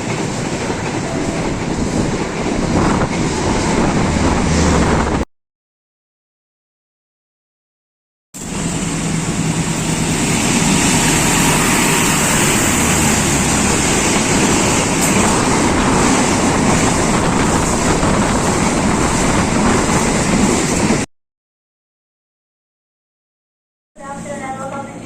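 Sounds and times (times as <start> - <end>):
train passing rumble: 0.0 - 5.3, 8.4 - 21.1.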